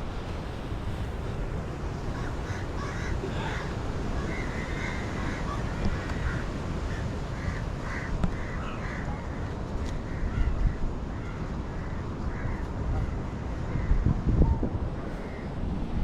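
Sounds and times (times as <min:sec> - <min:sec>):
low rumble of wind and surf: 0:00.0 - 0:16.0
crows cawing: 0:02.1 - 0:09.1.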